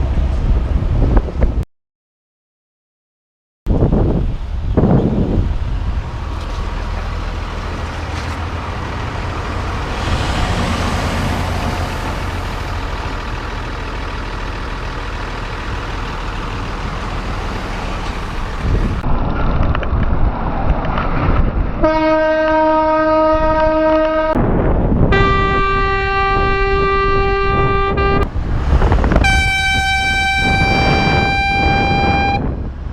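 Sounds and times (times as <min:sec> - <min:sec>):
road noise: 0:00.0 - 0:01.6, 0:03.7 - 0:32.9
wind noise: 0:00.0 - 0:01.6, 0:03.7 - 0:13.1, 0:16.8 - 0:32.9
air horn blasts: 0:21.8 - 0:24.4, 0:25.1 - 0:28.3, 0:29.2 - 0:32.6.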